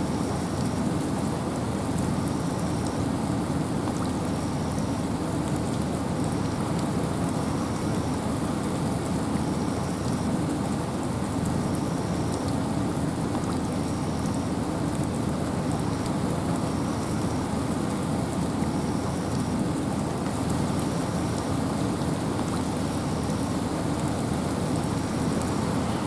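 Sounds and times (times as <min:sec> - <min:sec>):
rain and wind in forest: 0:00.0 - 0:26.0
raindrop ticks: 0:13.2 - 0:16.7, 0:17.8 - 0:26.0.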